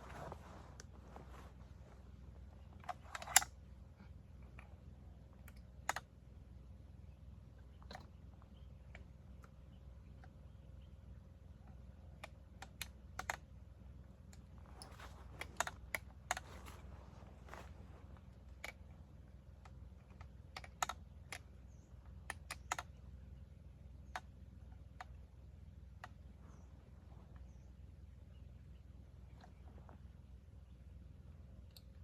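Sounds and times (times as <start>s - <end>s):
low steady hum: 0.0s - 32.0s
gun parts clicking and knocking: 2.8s - 3.6s, 14.3s - 19.0s.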